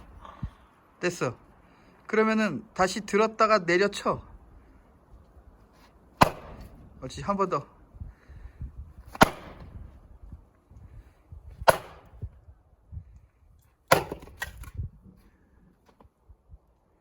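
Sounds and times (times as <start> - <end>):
axe striking a log: 6.2 - 6.8, 9.1 - 9.8, 11.6 - 12.3, 13.9 - 14.7.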